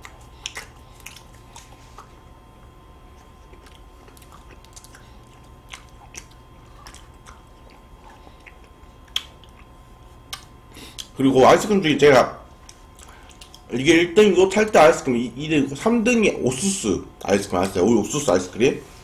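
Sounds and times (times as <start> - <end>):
chewing and wet mouth sounds: 0.0 - 11.8, 12.5 - 13.7.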